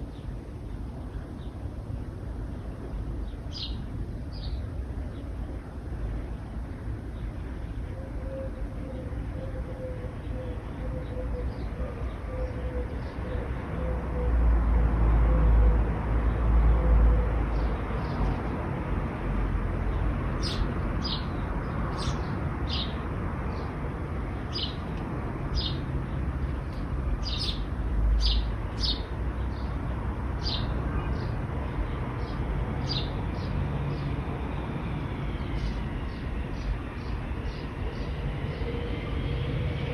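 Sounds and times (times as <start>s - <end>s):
road traffic rumble: 0.0s - 39.9s
bird chirping: 3.2s - 5.3s, 20.4s - 23.7s, 26.7s - 29.8s.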